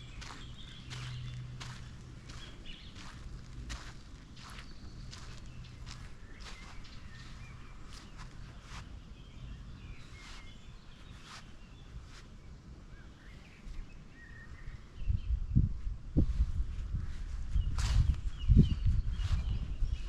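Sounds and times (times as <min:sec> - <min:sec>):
footsteps on a path: 0:00.0 - 0:09.1, 0:16.6 - 0:20.0
small birds chirping: 0:00.0 - 0:15.7, 0:17.0 - 0:20.0.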